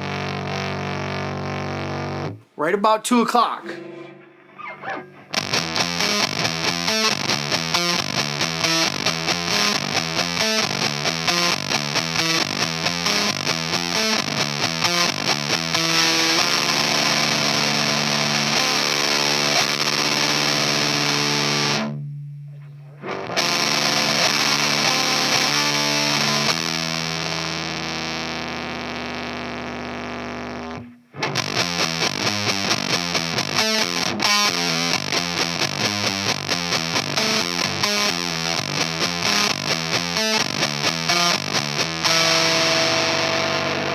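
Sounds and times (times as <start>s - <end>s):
fuzzed electric guitar: 0.0s - 2.6s, 3.6s - 43.9s.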